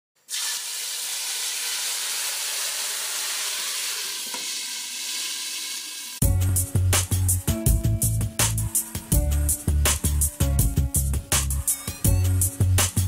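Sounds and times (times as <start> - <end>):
food frying in a pan: 0.2 - 6.2
music with heavy bass beat: 6.2 - 13.0.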